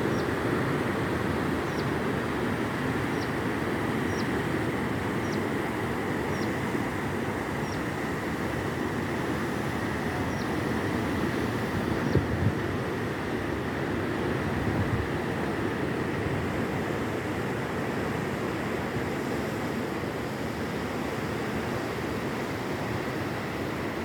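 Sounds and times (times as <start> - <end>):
wind noise on microphone: 11.6 - 12.8.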